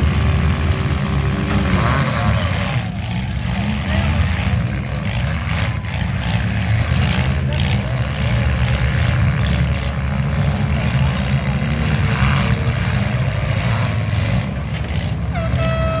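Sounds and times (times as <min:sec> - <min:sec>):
car engines revving: 0:00.0 - 0:16.0
horn-like tone: 0:15.3 - 0:16.0.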